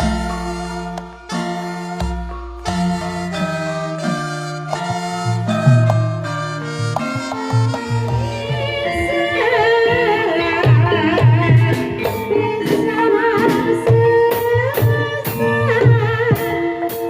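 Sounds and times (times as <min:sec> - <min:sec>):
gong-chime tones: 0:00.0 - 0:08.6
gamelan music: 0:00.0 - 0:17.0
hand drums: 0:00.0 - 0:17.0
wavering ornamented melody: 0:00.0 - 0:17.0.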